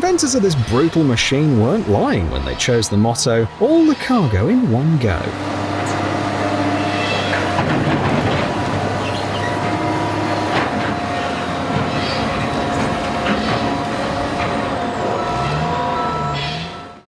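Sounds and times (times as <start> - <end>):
heavy machine rumbling: 0.0 - 17.0
high squeal: 5.8 - 7.5, 14.9 - 17.0.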